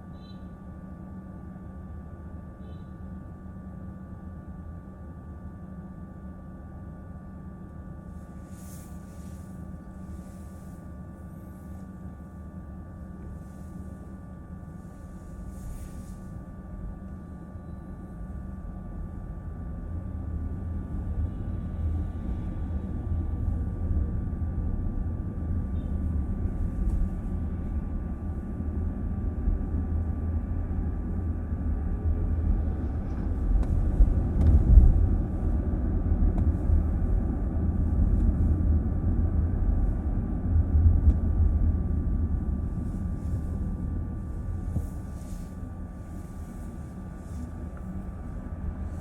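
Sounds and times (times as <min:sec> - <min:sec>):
road and tyre rumble in car: 0:08.1 - 0:17.3, 0:18.0 - 0:49.0.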